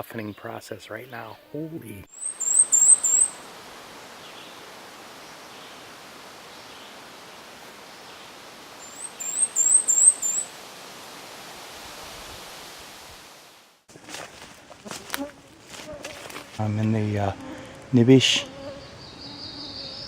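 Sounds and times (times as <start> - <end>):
songbird singing: 0.0 - 10.6, 18.4 - 20.0
steady outdoor hiss: 0.0 - 20.0.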